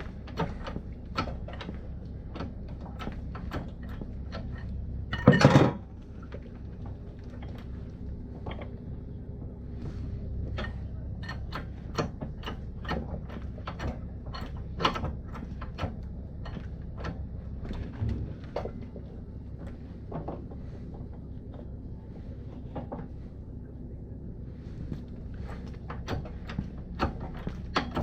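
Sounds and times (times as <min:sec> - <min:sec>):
steady low hum: 0:00.0 - 0:28.0
tools clicking and tapping: 0:10.6 - 0:17.2.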